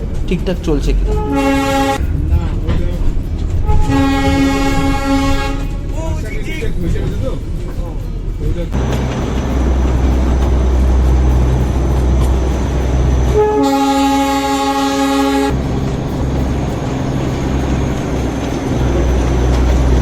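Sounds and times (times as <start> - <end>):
diesel locomotive rumbling: 0.0 - 20.0
locomotive horn blast: 1.0 - 2.1, 3.6 - 6.0, 8.8 - 20.0.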